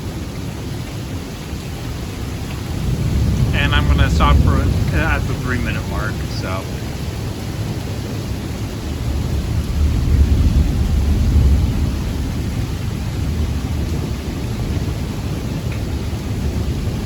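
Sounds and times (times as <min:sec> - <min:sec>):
hiss of rain: 0:00.0 - 0:17.0
thunder rumbling: 0:02.2 - 0:07.6, 0:08.9 - 0:17.0.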